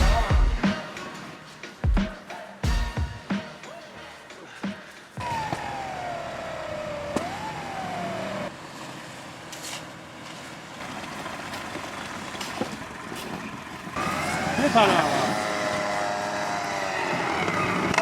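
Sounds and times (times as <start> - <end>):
engine under load: 5.2 - 18.0.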